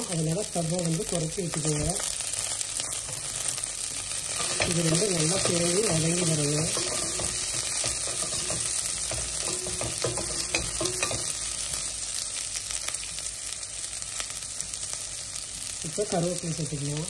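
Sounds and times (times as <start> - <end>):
onions sizzling in oil: 0.0 - 17.0
utensil clicking against pan: 4.3 - 11.4.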